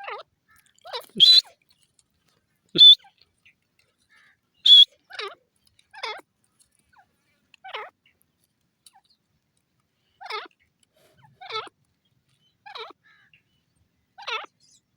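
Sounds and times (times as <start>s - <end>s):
francolin calling: 1.2s - 1.5s, 2.8s - 3.0s, 4.7s - 4.9s.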